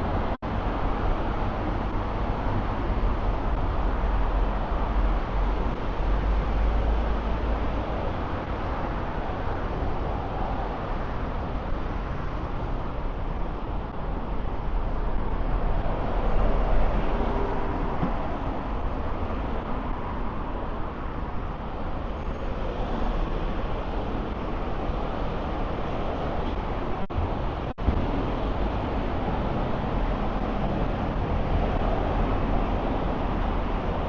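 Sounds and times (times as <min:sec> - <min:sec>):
passing cars and buses: 0:00.0 - 0:34.0.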